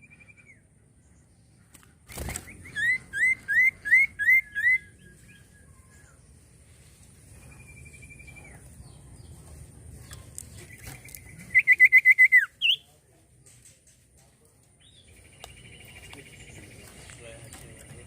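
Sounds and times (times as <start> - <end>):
bird whistling and trilling: 2.4 - 5.7, 10.7 - 12.9.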